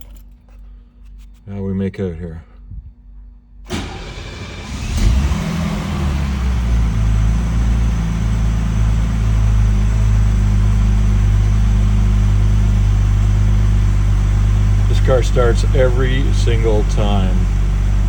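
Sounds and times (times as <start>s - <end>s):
starter motor cranking: 3.7s - 7.1s
car engine fast idle: 3.7s - 18.0s.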